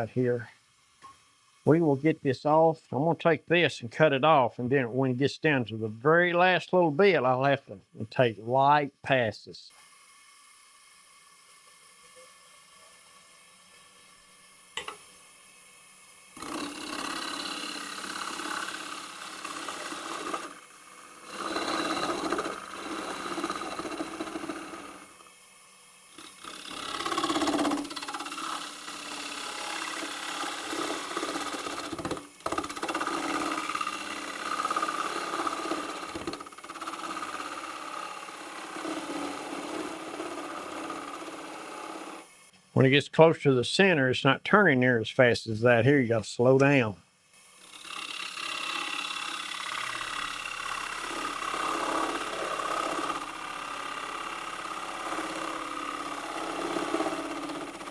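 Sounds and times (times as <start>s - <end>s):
lathe tool cutting wood: 9.8s - 15.1s, 16.2s - 42.5s, 47.4s - 57.9s.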